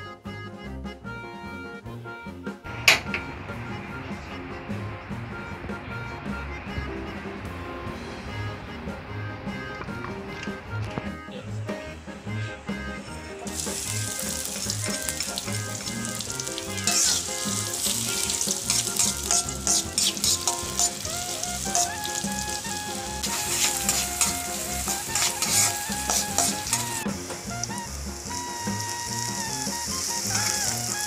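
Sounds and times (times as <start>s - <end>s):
hot oil sizzling in a wok: 13.4s - 31.0s.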